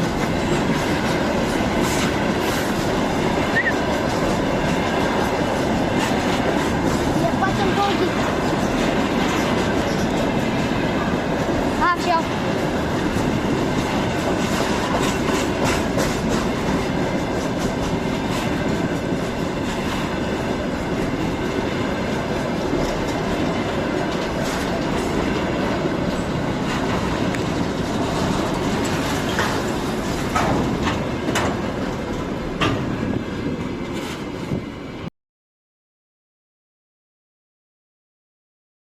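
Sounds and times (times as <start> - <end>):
wheels clicking over rail joints: 0.0 - 34.4
freight train wagons rumbling: 0.0 - 35.1.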